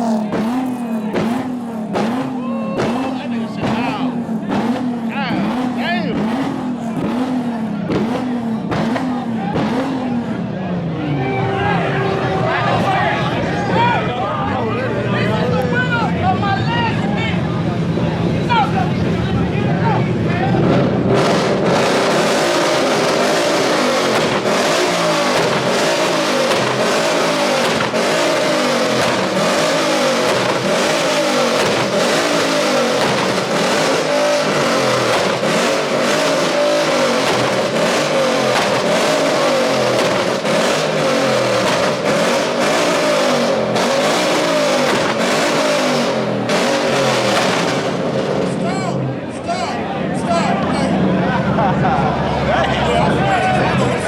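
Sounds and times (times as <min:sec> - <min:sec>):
car engine revving hard: 0:00.0 - 0:49.3.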